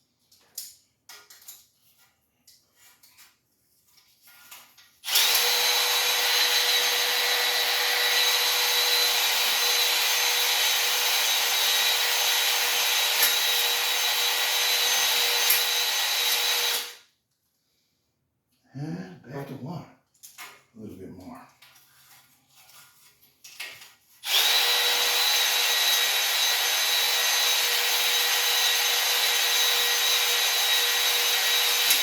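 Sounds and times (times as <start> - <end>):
electric drill spinning hone: 5.0 - 17.0, 24.2 - 32.0.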